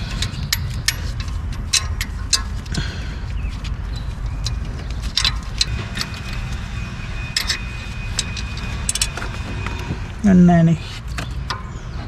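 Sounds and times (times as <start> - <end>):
metal tools clicking and clinking: 0.0 - 2.8, 4.0 - 6.5, 7.3 - 9.3.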